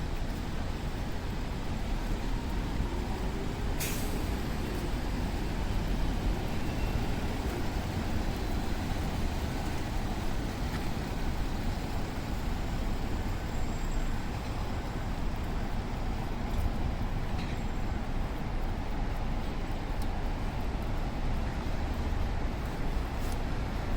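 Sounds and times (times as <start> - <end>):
rain hiss: 0.0 - 18.5
traffic rumble: 0.0 - 23.9.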